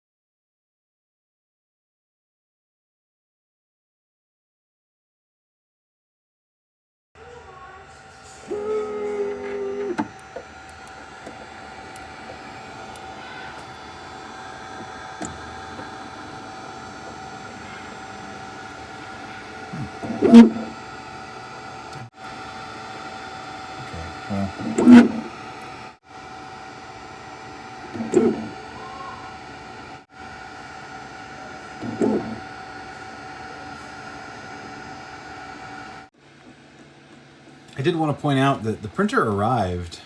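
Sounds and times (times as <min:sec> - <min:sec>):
loud whine: 0:07.2 - 0:30.6
three d printer humming: 0:07.2 - 0:40.0
short bursts of noise: 0:15.2 - 0:20.8
steady tones: 0:23.7 - 0:25.8.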